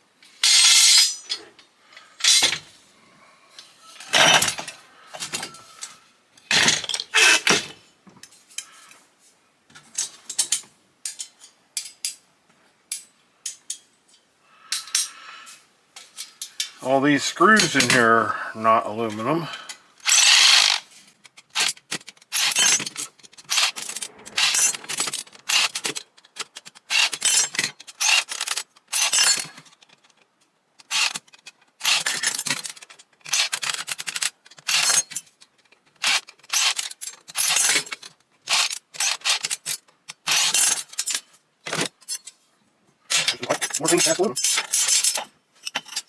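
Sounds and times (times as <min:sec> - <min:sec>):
metal parts clinking and scraping: 0:00.3 - 0:02.7, 0:03.9 - 0:08.9, 0:17.4 - 0:18.2, 0:20.0 - 0:42.4, 0:43.1 - 0:46.0.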